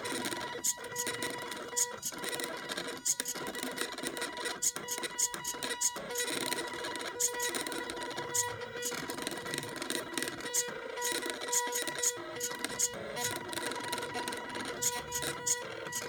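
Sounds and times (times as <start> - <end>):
stepper motors whining: 4.6 - 16.0.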